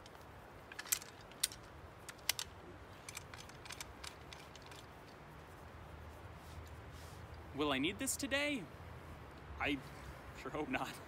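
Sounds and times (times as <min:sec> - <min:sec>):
blade handling clicks: 0:00.0 - 0:05.2
soft rustles: 0:00.0 - 0:07.7.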